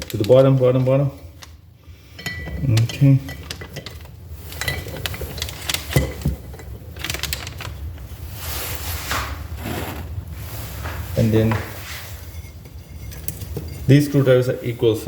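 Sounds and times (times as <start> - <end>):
rustling swishes: 8.2 - 12.3.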